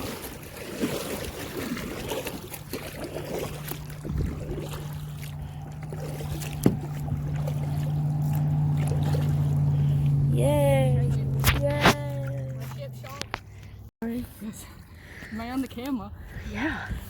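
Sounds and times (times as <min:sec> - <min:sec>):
water trickling and splashing: 0:00.0 - 0:17.0
low hum: 0:02.4 - 0:13.9
knocks on kayak: 0:06.6 - 0:06.9.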